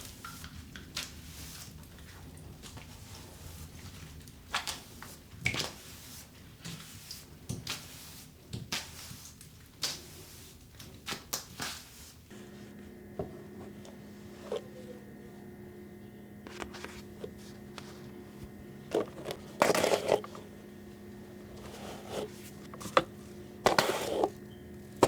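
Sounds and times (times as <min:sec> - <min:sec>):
steady hum: 0:12.3 - 0:25.0.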